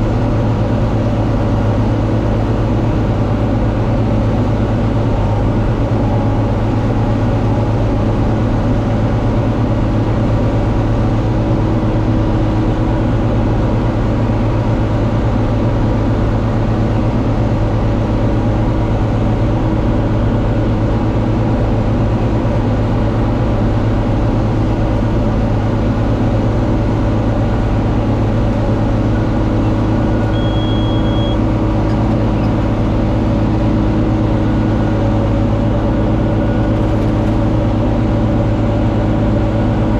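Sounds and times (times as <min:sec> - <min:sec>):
diesel tractor engine under load: 0:00.0 - 0:39.9
high beep: 0:30.2 - 0:31.4.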